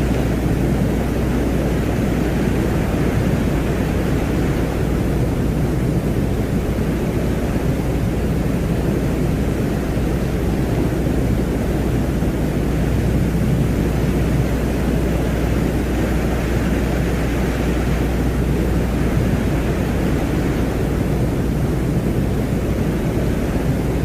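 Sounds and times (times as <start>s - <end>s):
deep rumbling drone: 0.0s - 24.0s
low hum: 0.0s - 24.0s.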